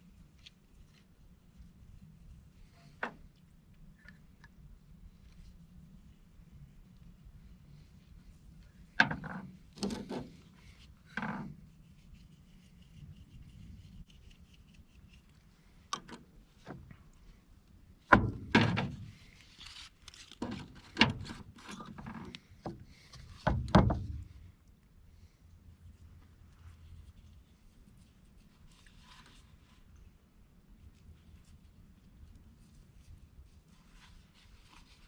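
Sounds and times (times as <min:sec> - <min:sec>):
plastic pipe knocking and scraping: 0:09.0 - 0:11.7, 0:18.1 - 0:19.2, 0:20.4 - 0:24.5.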